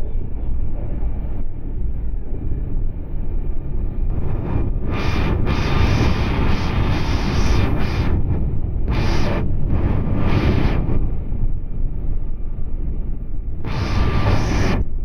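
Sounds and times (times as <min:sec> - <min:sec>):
wheels rumbling on rail: 0:00.0 - 0:15.0
rushing hiss: 0:04.1 - 0:11.1, 0:13.7 - 0:14.8.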